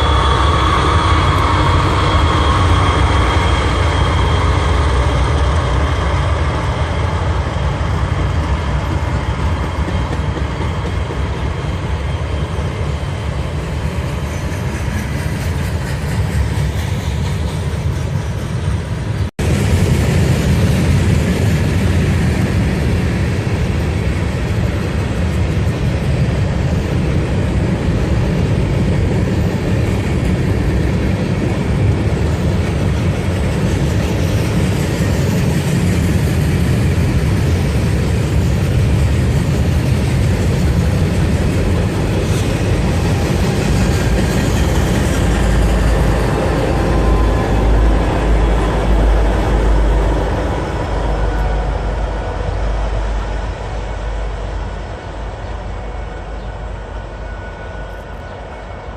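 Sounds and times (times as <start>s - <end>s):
freight train rumbling past: 0.0s - 58.9s.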